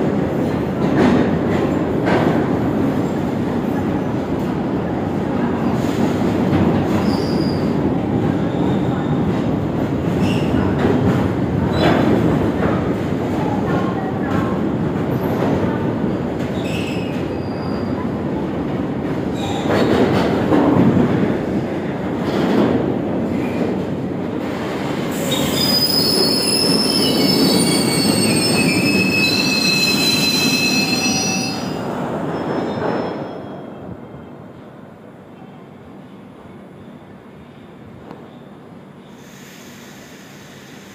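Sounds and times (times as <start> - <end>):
high-pitched wheel squeal: 25.3 - 31.8.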